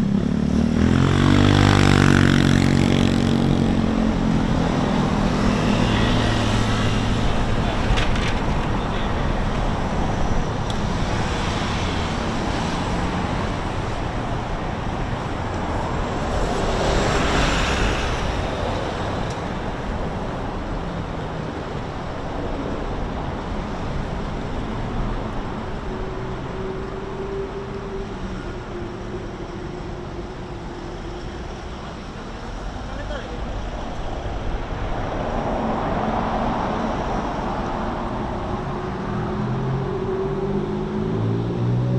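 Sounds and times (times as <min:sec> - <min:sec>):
road traffic: 0:00.0 - 0:41.9
vehicle passing close: 0:00.6 - 0:20.1.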